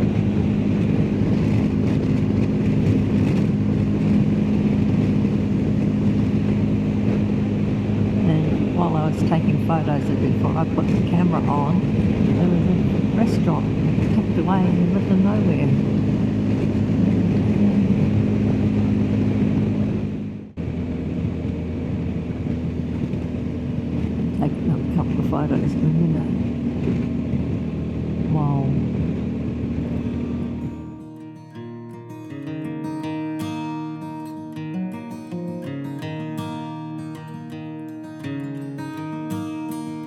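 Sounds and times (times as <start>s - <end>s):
motorcycle engine cruising: 0.0s - 31.2s
wind and road noise: 0.0s - 31.4s.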